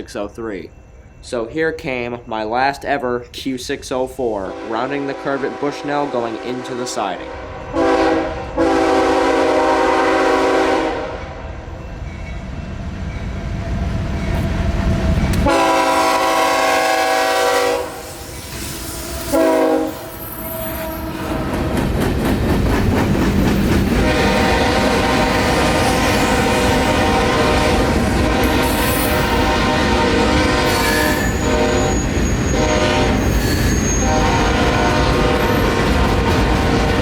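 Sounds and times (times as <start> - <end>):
train rumbling past: 0.0 - 37.0
locomotive horn blasts: 4.5 - 11.3, 15.4 - 18.1, 19.3 - 21.2, 24.0 - 35.8.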